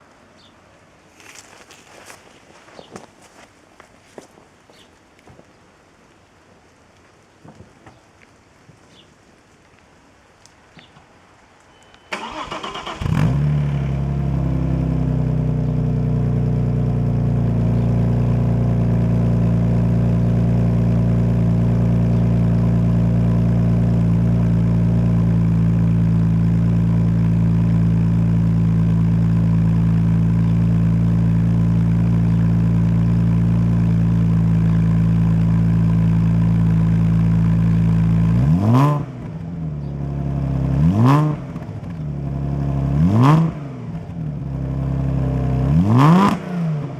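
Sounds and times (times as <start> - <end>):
car engine starting and idling: 12.1 - 46.9
engine revving: 12.2 - 46.9.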